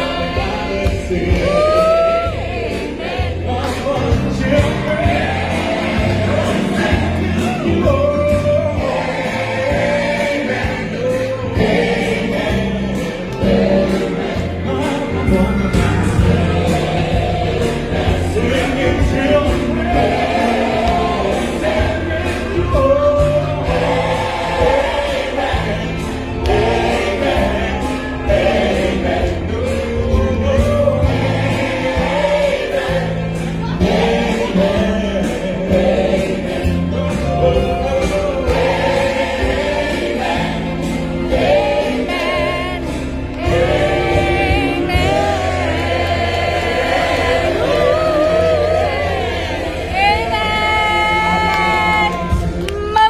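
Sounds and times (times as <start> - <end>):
choir singing gospel music: 0.0 - 53.0
steady bass accompaniment: 0.0 - 53.0.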